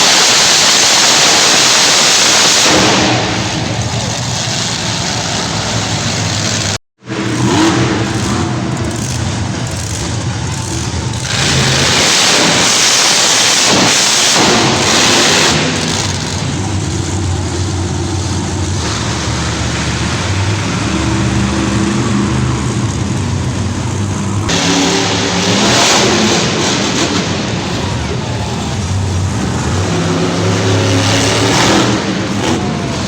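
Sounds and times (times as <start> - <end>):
loud rushing blast: 0.0 - 9.6, 10.4 - 33.0
truck engine revving: 0.0 - 33.0.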